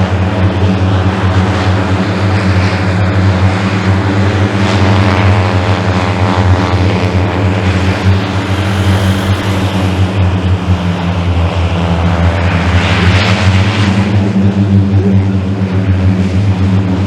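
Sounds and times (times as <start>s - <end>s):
engine droning: 7.1s - 14.1s
faint high whine: 7.6s - 13.5s.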